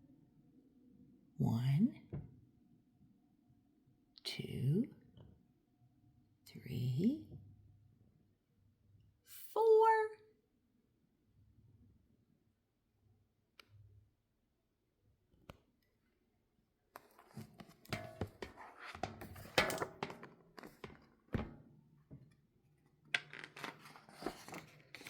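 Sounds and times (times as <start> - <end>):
rustling and scraping: 17.0 - 22.3, 23.2 - 25.0.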